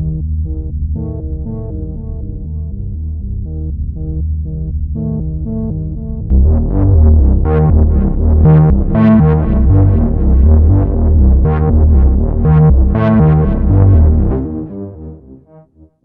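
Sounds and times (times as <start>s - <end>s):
synthesizer playing quick bass notes: 6.3s - 15.3s.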